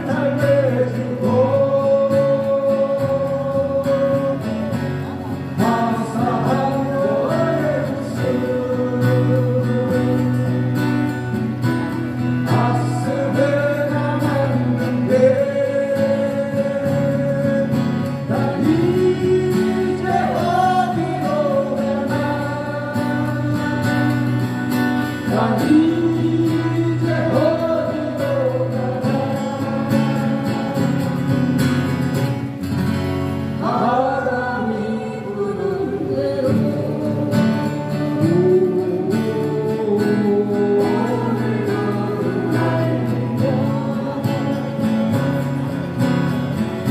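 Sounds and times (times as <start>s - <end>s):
person singing: 0.0s - 10.9s, 12.4s - 24.6s, 25.2s - 31.3s, 33.6s - 45.6s
acoustic guitar: 0.0s - 46.9s.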